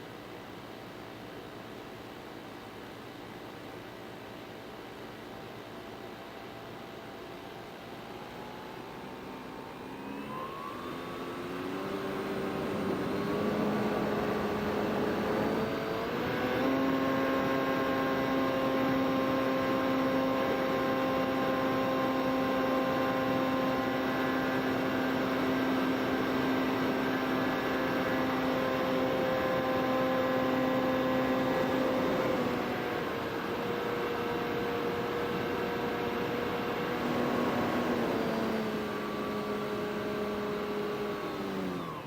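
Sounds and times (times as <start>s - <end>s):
drone motors whining: 8.0s - 19.1s, 24.5s - 42.0s.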